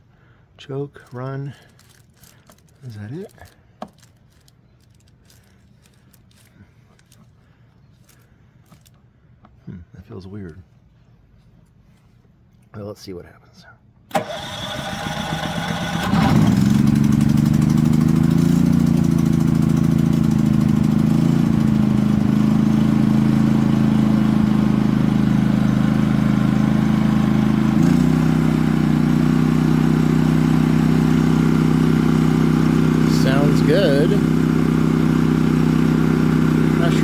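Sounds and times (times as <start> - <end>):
generator engine running: 14.1 - 37.0.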